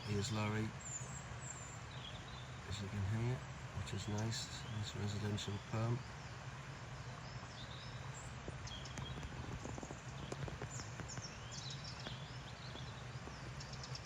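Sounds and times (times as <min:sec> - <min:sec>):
songbirds chirping and singing: 0:00.0 - 0:14.0
steady low hum: 0:00.0 - 0:14.0
faint ticks: 0:08.4 - 0:14.0.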